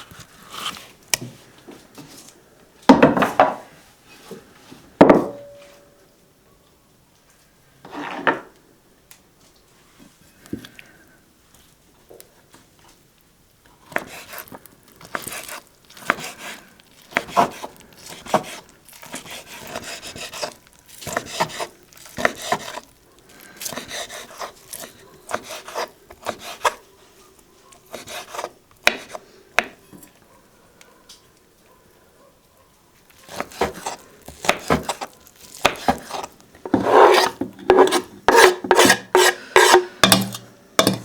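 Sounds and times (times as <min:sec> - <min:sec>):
scraping and rubbing on wooden board: 0:13.9 - 0:26.8, 0:27.9 - 0:29.2, 0:33.2 - 0:41.0.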